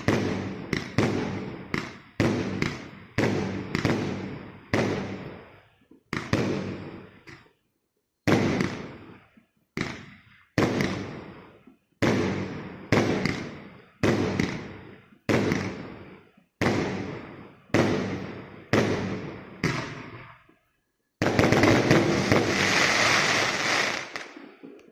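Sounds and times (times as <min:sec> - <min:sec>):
fireworks shots with crackle: 0:00.0 - 0:07.6, 0:08.2 - 0:24.9.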